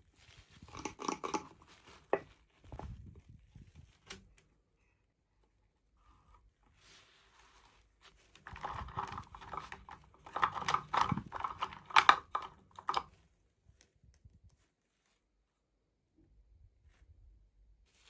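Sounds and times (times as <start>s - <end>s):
plastic packaging crinkling: 8.1s - 13.2s.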